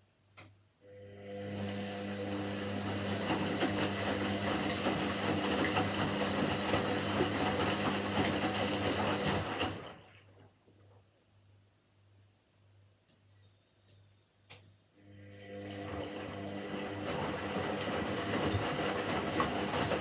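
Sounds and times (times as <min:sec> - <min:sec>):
washing machine spinning: 0:01.0 - 0:10.1, 0:15.4 - 0:20.0.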